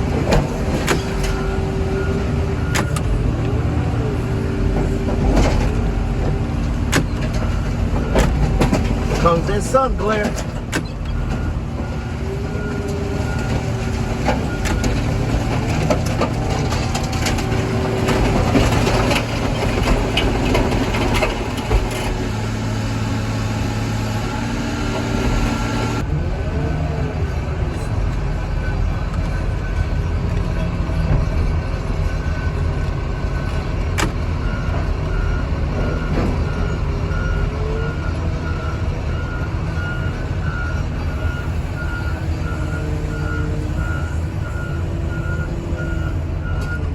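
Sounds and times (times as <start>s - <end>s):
scrap metal crunching and scraping: 0.0s - 26.0s
heavy equipment engine running: 0.0s - 46.9s
reversing alarm beeping: 34.4s - 46.9s.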